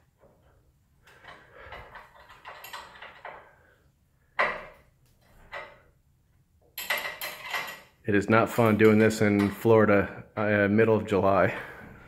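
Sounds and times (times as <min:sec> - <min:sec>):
metal tools knocking and rattling: 0:01.2 - 0:03.6, 0:04.4 - 0:05.9, 0:06.7 - 0:08.0, 0:08.6 - 0:09.7.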